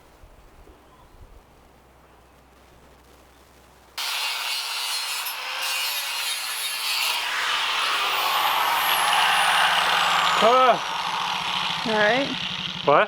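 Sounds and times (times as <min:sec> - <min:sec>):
power tool grinding: 0:04.0 - 0:13.0.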